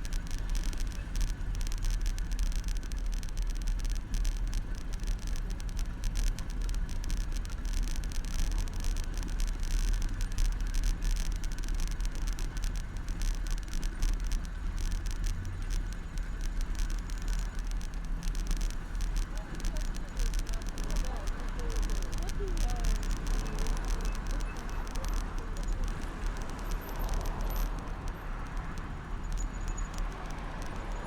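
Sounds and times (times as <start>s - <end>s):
bicycle tyres rumbling: 0.0s - 31.0s
bicycle rattles and knocks: 24.7s - 31.0s.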